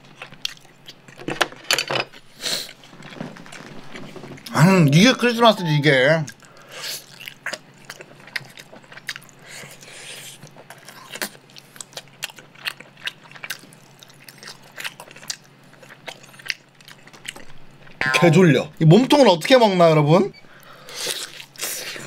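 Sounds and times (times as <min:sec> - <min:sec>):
chewing and mouth sounds: 0:00.0 - 0:01.2, 0:06.3 - 0:18.0.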